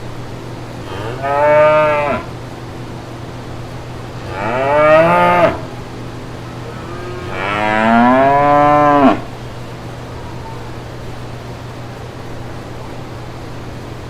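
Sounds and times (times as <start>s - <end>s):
cow mooing: 0.8s - 2.4s, 4.2s - 5.8s, 6.5s - 9.3s.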